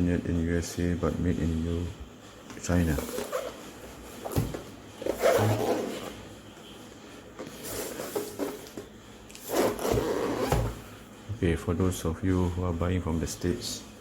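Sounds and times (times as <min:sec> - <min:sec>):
cardboard box rubbing and scraping: 0:03.0 - 0:06.2, 0:07.5 - 0:08.7, 0:09.4 - 0:10.8.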